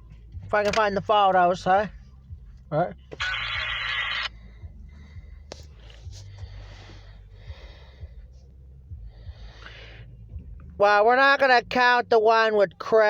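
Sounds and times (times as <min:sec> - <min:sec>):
low steady hum: 0:00.0 - 0:13.0
person breathing: 0:04.3 - 0:10.4.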